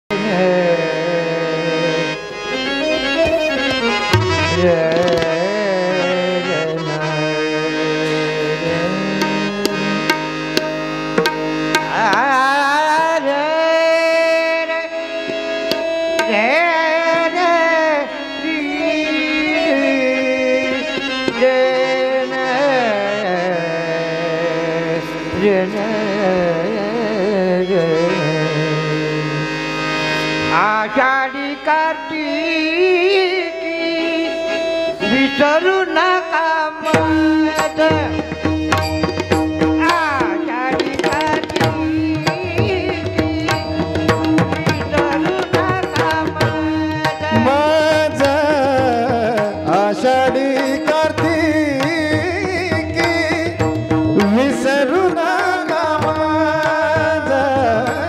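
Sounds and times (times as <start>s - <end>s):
person singing wordless vocals: 0.0s - 10.4s, 11.8s - 29.8s, 30.4s - 38.7s, 39.6s - 58.0s
harmonium drone: 0.1s - 58.0s
tabla strokes: 3.0s - 5.6s, 9.2s - 12.4s, 15.2s - 16.4s, 36.9s - 55.2s.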